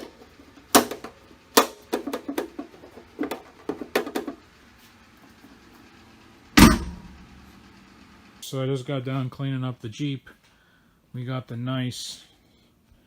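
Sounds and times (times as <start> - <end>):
sharp clicks and knocks: 6.6 - 7.3.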